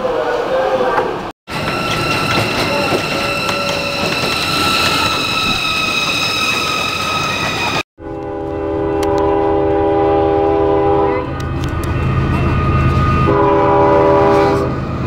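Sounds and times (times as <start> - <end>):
locomotive air horn chord: 8.0 - 11.3, 13.3 - 14.7.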